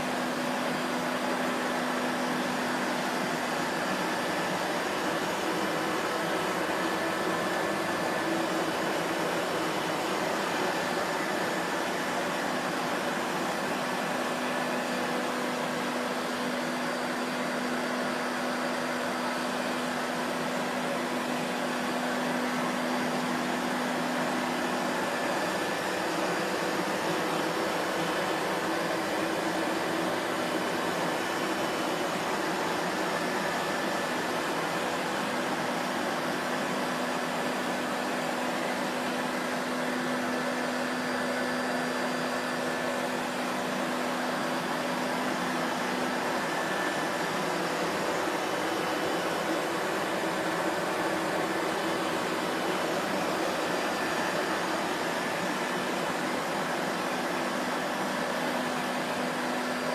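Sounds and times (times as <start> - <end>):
vacuum cleaner motor running: 0.0 - 59.9.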